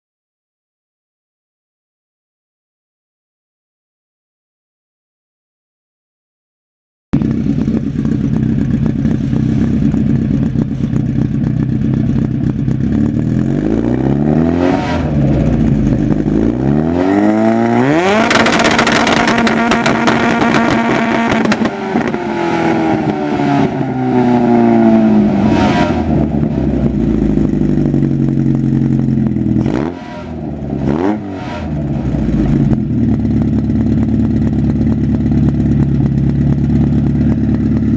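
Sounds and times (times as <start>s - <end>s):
engine idling and revving: 7.2s - 37.9s
engine stuttering on rev limiter: 7.2s - 37.9s.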